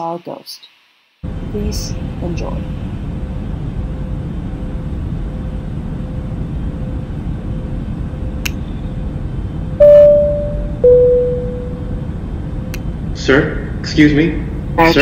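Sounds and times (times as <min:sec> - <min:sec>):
airliner cabin rumble: 0:01.3 - 0:15.0
two-tone cabin chime: 0:09.8 - 0:12.0.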